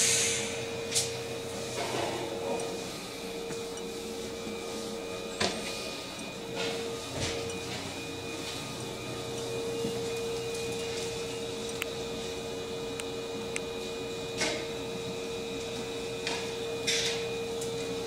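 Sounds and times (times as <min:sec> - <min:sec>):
short hissing bursts: 0:00.0 - 0:00.6
train equipment electrical hum: 0:00.0 - 0:18.0.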